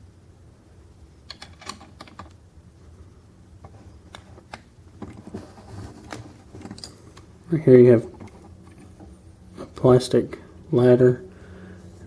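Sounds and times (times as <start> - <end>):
small parts clicking and tapping: 1.3 - 2.4, 6.1 - 7.3.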